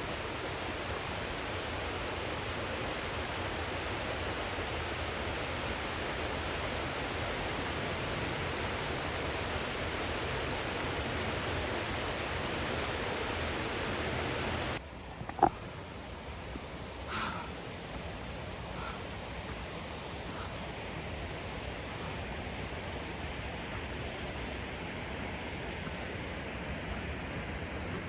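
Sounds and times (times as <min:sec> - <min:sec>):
waterfall rushing: 0:00.0 - 0:14.8.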